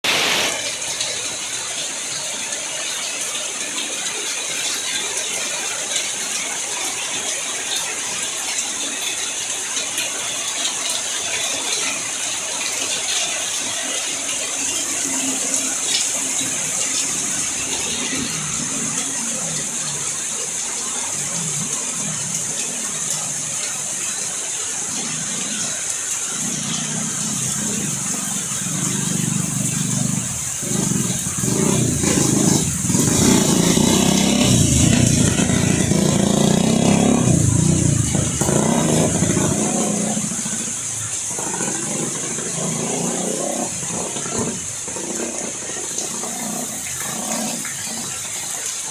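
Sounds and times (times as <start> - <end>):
heavy rain hissing: 0.0 - 48.9
vehicle engine passing: 27.0 - 44.6.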